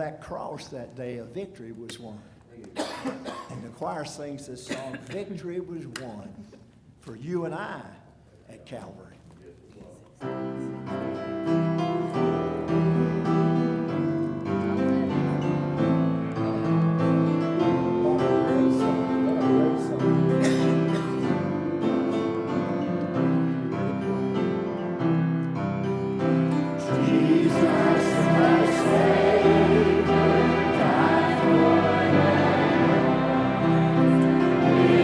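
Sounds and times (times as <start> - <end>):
piano chords: 10.3 - 35.0
choir singing: 12.1 - 25.0, 26.8 - 35.0.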